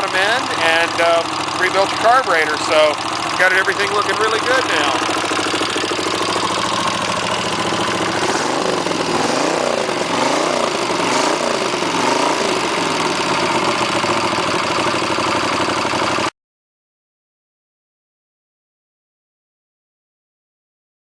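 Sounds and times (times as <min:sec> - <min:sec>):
motorcycle engine idling: 0:00.0 - 0:16.3.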